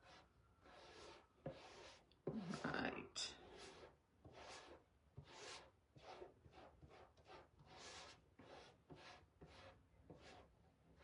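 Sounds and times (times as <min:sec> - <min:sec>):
stencil brush scratchy strokes: 0:00.0 - 0:02.7, 0:03.3 - 0:11.0.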